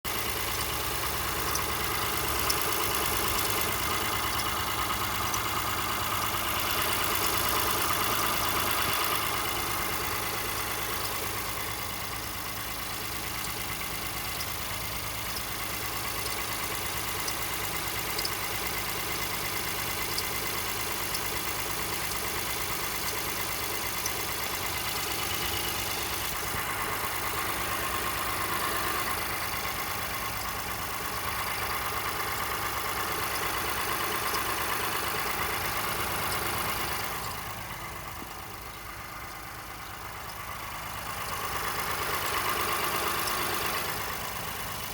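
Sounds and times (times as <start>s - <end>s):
car engine idling: 0.0s - 44.9s
high-pitched engine squeaks: 0.2s - 11.9s, 27.4s - 40.4s.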